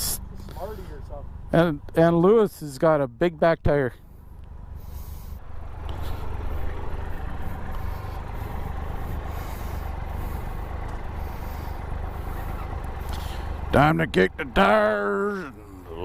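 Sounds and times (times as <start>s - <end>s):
motorcycle engine running: 4.0s - 16.0s.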